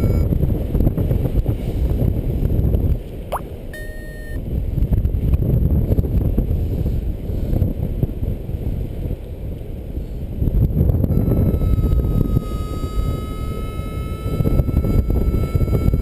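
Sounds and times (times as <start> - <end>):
high electronic beep: 0.0 - 0.2, 3.3 - 4.4
wind buffeting microphone: 0.0 - 3.7, 4.4 - 16.0.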